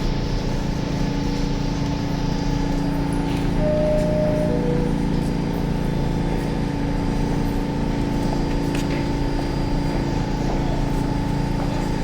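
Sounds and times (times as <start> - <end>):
subway car humming and rumbling: 0.0 - 12.0
two-note falling tone: 3.6 - 5.3.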